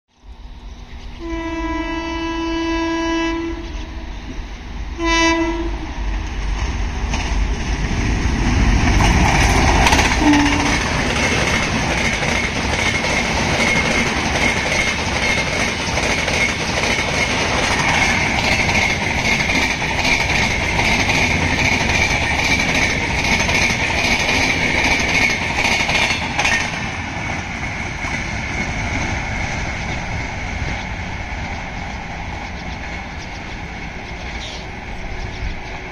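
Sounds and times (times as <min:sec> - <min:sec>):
train coaches rumbling and clattering: 0:00.2 - 0:35.9
locomotive horn blasts: 0:01.2 - 0:04.1, 0:05.0 - 0:06.0, 0:10.2 - 0:11.0.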